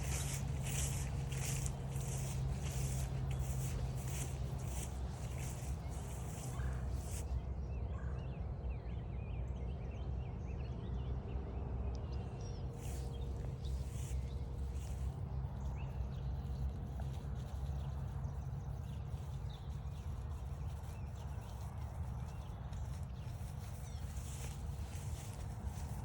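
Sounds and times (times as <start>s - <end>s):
low microphone rumble: 0.0s - 7.3s
footsteps crunching on trail: 0.0s - 7.4s, 12.8s - 26.0s
songbirds chirping: 0.0s - 26.0s.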